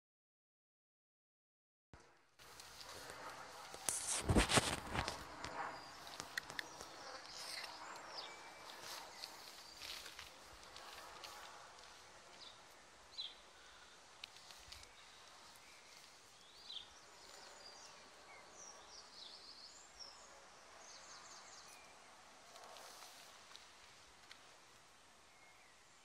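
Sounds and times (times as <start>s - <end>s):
small birds chirping: 2.4s - 26.0s.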